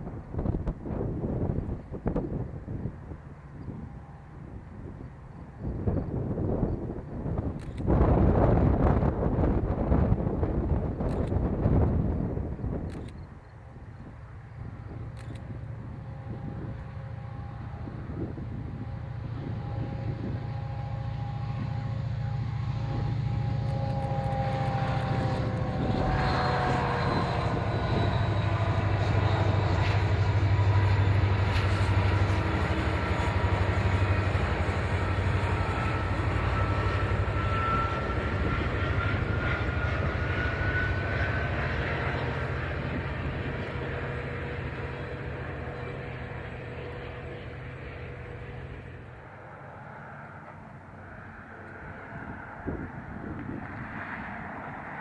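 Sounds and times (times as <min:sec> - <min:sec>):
train rumbling past: 0:00.0 - 0:55.0
whining tones: 0:14.4 - 0:53.0.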